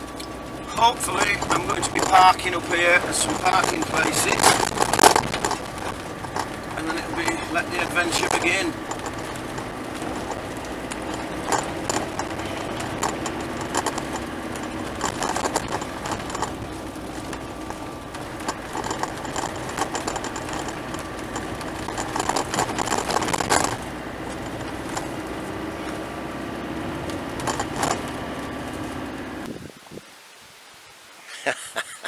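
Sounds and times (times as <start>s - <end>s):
rattles and knocks: 0.0s - 29.5s
van engine running: 0.0s - 29.5s.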